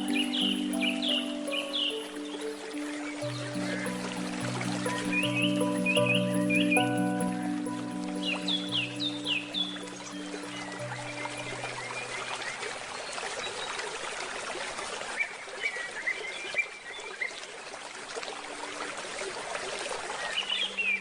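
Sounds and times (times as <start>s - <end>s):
sustained handpan note: 0.0s - 13.2s
bird chirping: 0.0s - 13.8s
trickling stream: 0.0s - 21.0s.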